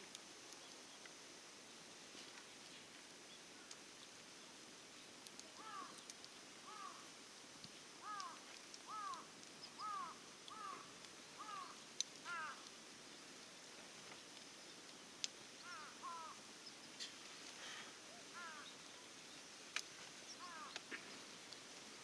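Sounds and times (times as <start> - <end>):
faint background hiss: 0.0 - 22.0
distant bird calling: 5.6 - 6.0, 6.7 - 7.0, 8.0 - 12.7, 15.6 - 16.4, 17.0 - 19.1, 20.3 - 21.2.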